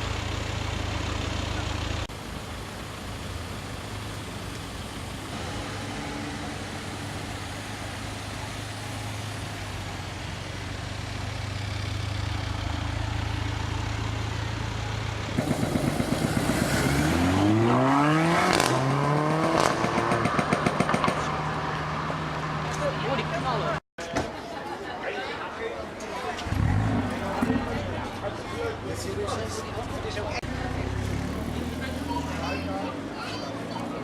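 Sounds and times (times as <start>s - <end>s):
exhaust crackles: 0.7s - 23.8s
car engine accelerating: 5.2s - 23.8s, 26.4s - 34.0s.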